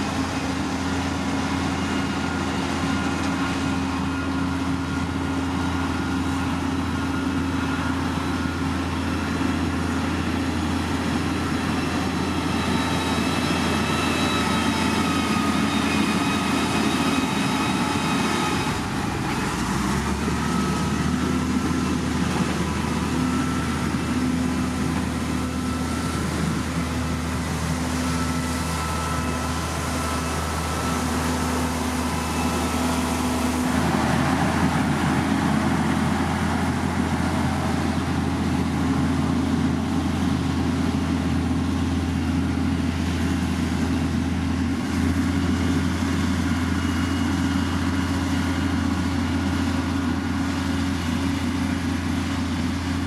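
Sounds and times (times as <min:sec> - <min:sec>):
earthmoving machine diesel engines: 0:00.0 - 0:53.0.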